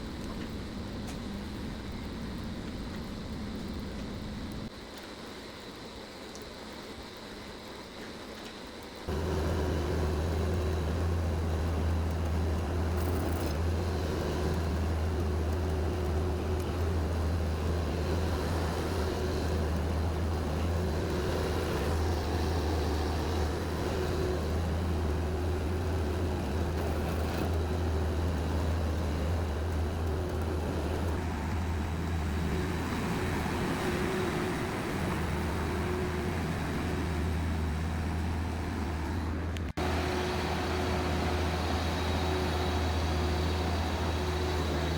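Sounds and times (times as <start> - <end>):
vehicle engine droning: 9.1 - 44.9.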